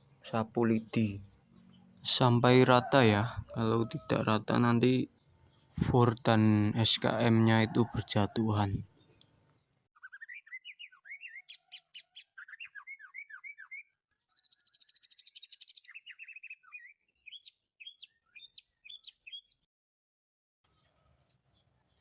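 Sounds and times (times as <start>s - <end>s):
songbird chirping: 0.0s - 19.7s
high bird trill: 10.0s - 19.6s.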